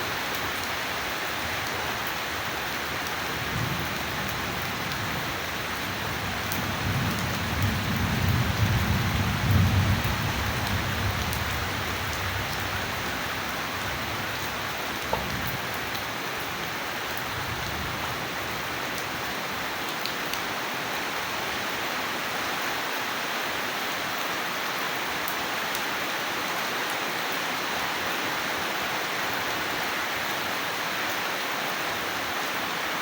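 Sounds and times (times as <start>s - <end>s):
heavy rain falling: 0.0s - 33.0s
thunder rumbling: 3.4s - 15.8s.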